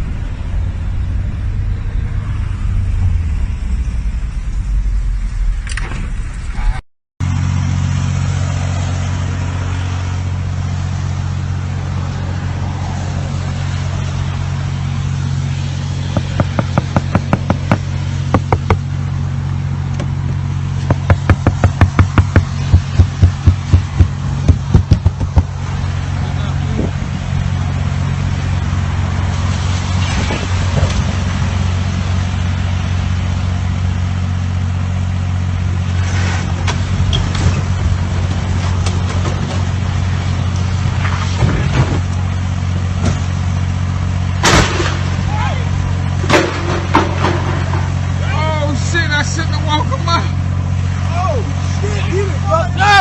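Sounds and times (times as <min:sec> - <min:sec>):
car engine drone: 0:00.0 - 0:53.0
road rumble: 0:00.0 - 0:53.0
rapid loud knocks: 0:16.1 - 0:18.9, 0:20.8 - 0:25.6.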